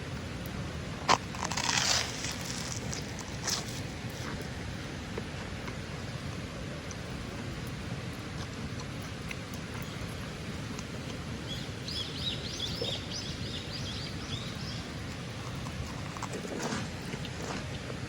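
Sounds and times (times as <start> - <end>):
songbird singing: 9.7 - 16.3.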